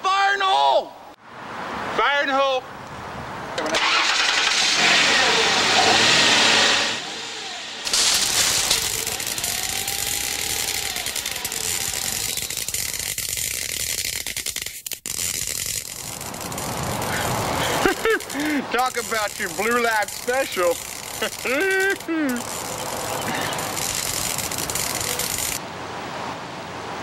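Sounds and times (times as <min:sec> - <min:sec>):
electric zapper buzzing and crackling: 0:04.3 - 0:25.6.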